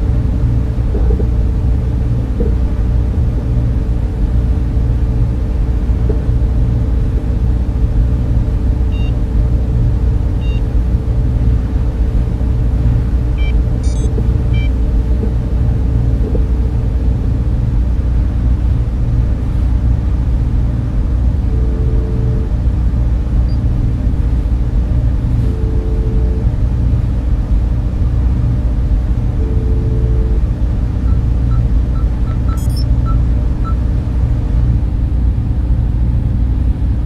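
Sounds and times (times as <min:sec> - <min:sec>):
server fans humming: 0:00.0 - 0:37.0
faint high chirps: 0:31.1 - 0:32.9.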